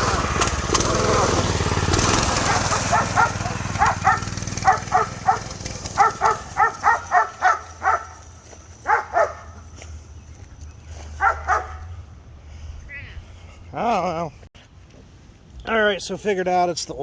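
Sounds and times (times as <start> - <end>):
low engine hum: 0.0 - 13.8
dog barking: 2.4 - 8.2, 8.8 - 9.6, 11.2 - 11.9.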